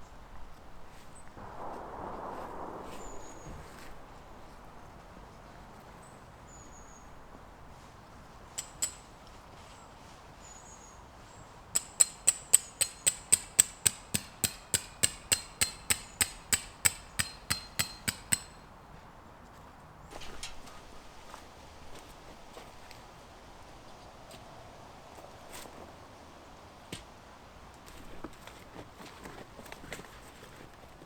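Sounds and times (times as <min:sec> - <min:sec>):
hammer striking metal: 0:11.8 - 0:18.6.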